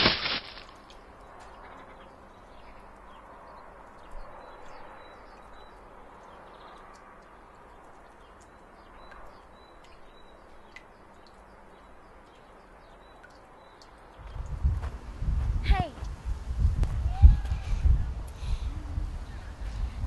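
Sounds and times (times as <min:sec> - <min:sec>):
small birds chirping: 0:17.5 - 0:20.0.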